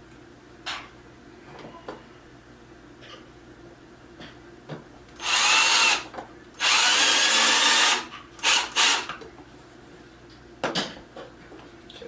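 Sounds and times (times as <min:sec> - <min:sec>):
cordless drill driving screws: 0:05.2 - 0:09.1.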